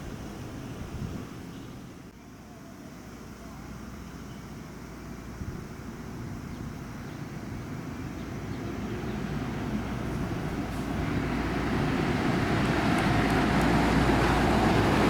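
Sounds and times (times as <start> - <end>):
road noise: 0.0 - 2.2, 3.9 - 15.0
bus engine: 7.0 - 15.0.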